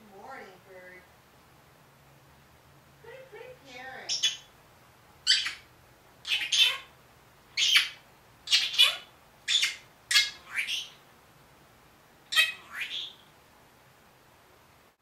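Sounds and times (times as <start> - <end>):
parrot squawking: 3.7 - 4.5, 5.2 - 11.0, 12.3 - 13.3.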